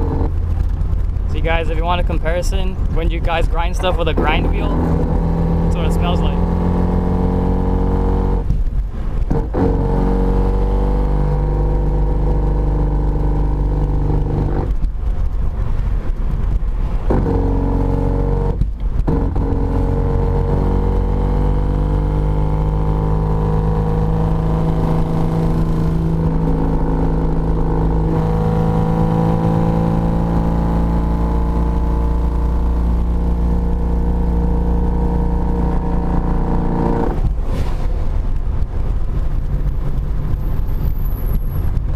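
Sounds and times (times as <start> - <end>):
car engine running: 0.0 - 41.6
man talking: 1.3 - 4.9, 5.7 - 6.4.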